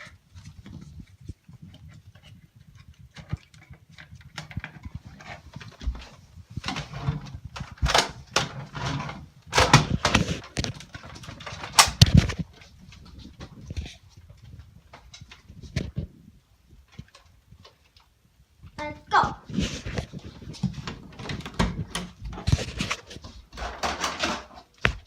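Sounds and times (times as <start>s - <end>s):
irregular knocks and clatters: 19.6s - 25.0s.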